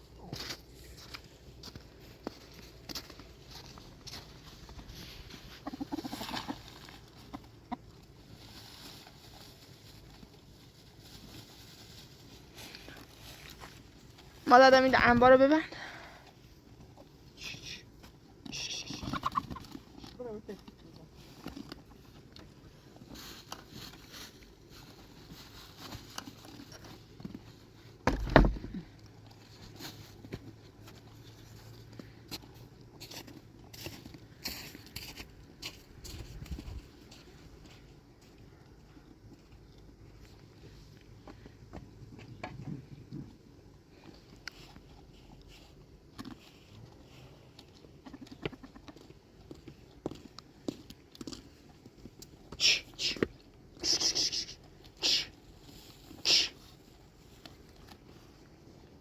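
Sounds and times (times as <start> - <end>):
faint rustling: 0.0 - 17.2
hen clucking: 5.4 - 8.1, 18.5 - 19.8.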